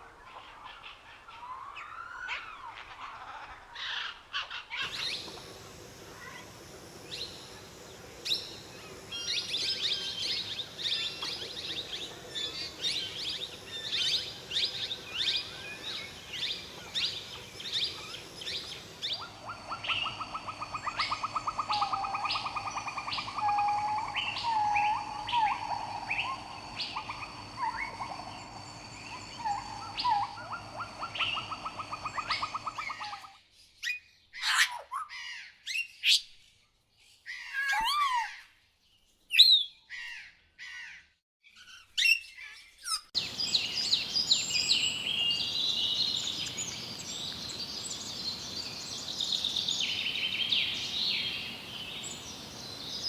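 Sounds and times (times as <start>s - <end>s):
birds chirping: 0.3s - 33.2s, 42.9s - 53.0s
steady high hum: 4.8s - 32.8s.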